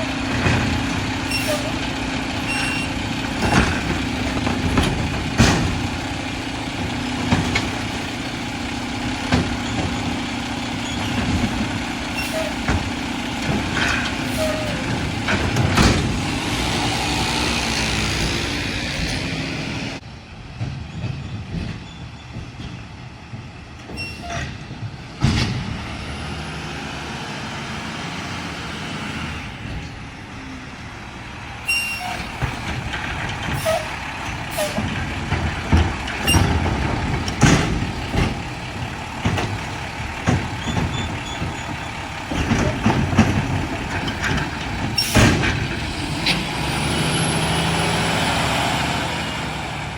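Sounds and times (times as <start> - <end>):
truck engine noise: 0.0 - 49.9
sharp metal bangs and clanks: 31.8 - 47.1.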